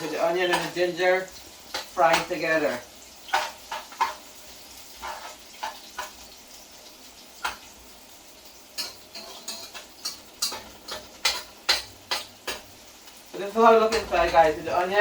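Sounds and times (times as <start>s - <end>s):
food sizzling in hot oil: 0.0s - 15.0s
spoon scraping and clinking pot: 4.9s - 6.2s, 8.8s - 12.6s.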